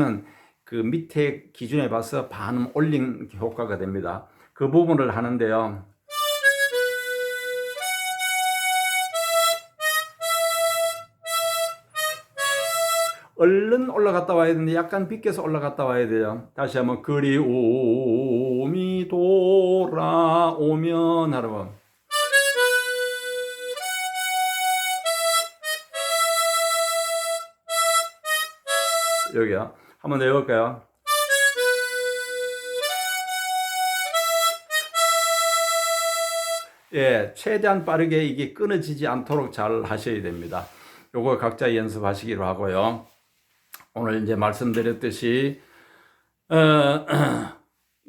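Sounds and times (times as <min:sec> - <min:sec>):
harmonica playing held notes: 0:06.1 - 0:13.3, 0:22.1 - 0:29.4, 0:31.1 - 0:36.9.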